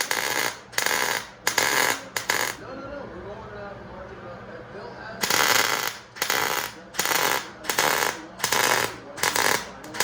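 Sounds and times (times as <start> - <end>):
welder arc crackle: 0.0 - 2.6, 5.2 - 10.0.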